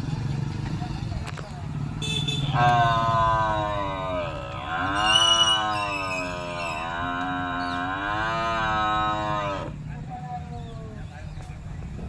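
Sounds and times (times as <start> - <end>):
buffalo mooing: 2.4 - 9.8.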